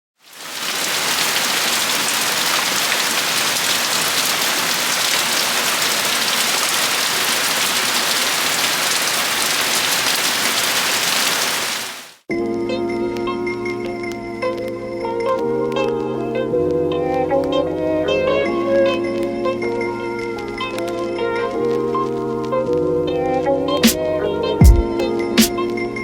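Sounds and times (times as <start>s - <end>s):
heavy rain: 0.2s - 12.2s.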